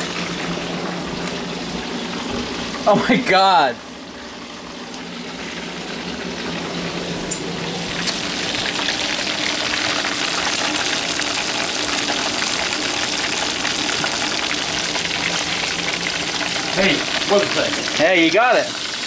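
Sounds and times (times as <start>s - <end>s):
deep-frying sizzle with pops: 4.2s - 19.0s.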